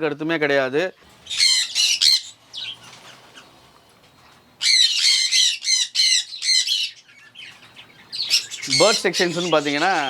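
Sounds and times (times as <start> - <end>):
bird squawking: 1.2 - 3.6, 4.6 - 10.0.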